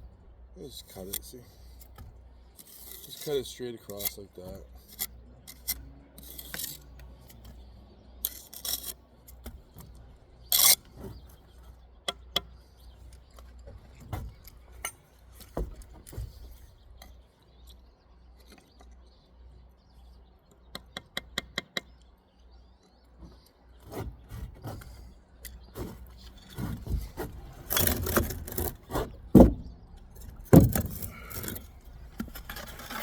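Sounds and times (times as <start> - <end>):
trowel scraping mortar on brick: 2.6 - 7.0, 8.2 - 9.6, 10.5 - 11.2, 25.8 - 29.4, 30.6 - 33.0.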